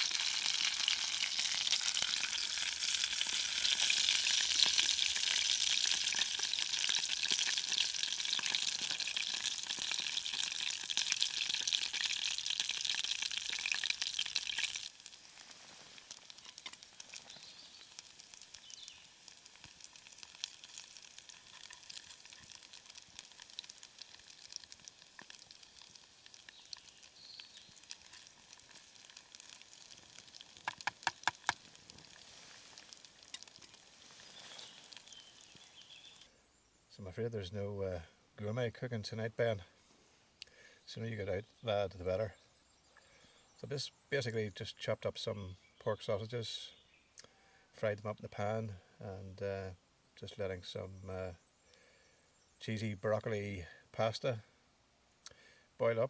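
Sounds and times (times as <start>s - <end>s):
sausages sizzling in a pan: 0.0s - 36.3s.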